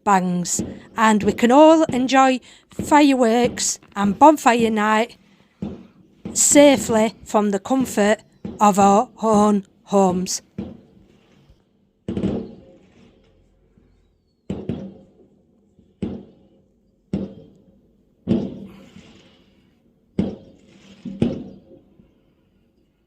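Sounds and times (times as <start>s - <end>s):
fireworks bangs: 0.1s - 22.3s.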